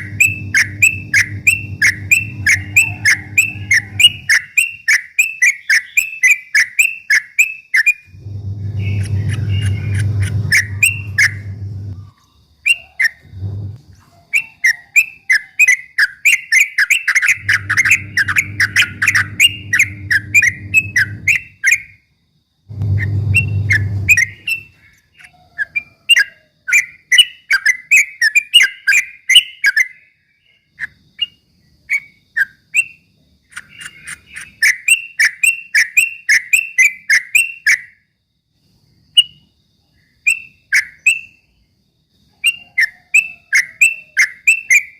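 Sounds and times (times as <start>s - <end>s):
low hum: 0.0s - 4.3s, 8.1s - 12.1s, 13.2s - 13.9s, 17.4s - 21.4s, 22.7s - 24.7s
bird singing rapid chirps: 0.0s - 13.7s, 14.4s - 22.0s, 22.8s - 31.3s, 31.9s - 37.9s.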